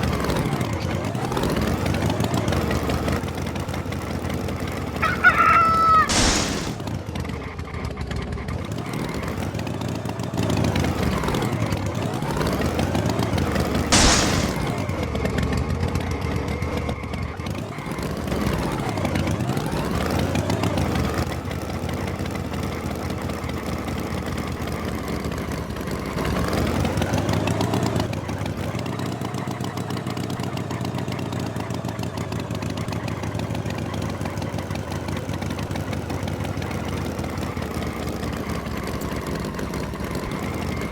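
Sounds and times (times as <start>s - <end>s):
cartoon tractor engine revving: 0.0s - 40.9s
short sharp sound: 6.1s - 6.8s.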